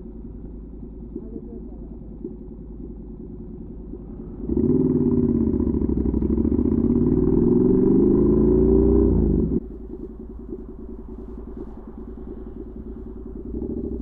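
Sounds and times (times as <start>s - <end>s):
motorcycle engine revving: 4.2s - 14.0s.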